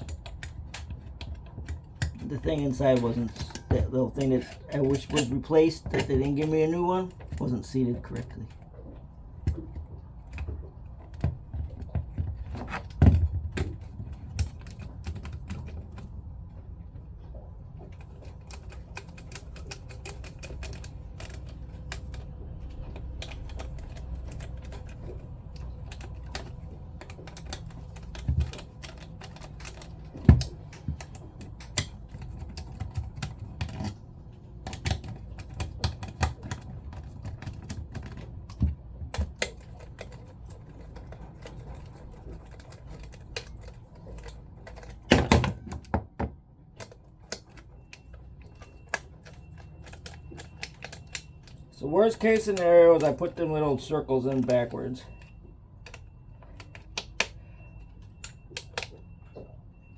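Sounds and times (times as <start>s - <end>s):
clicks of pump parts handled: 34.6s - 59.5s.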